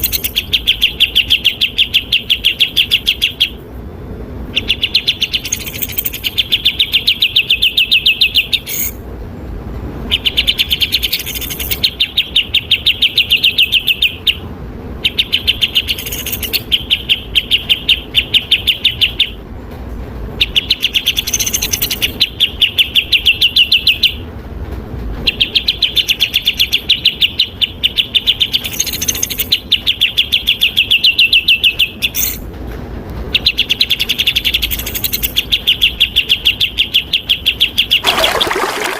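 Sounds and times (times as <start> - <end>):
songbird rattling trills: 0.0 - 3.4, 4.6 - 7.7, 10.2 - 12.7, 15.2 - 16.6, 28.3 - 29.6, 33.7 - 36.4.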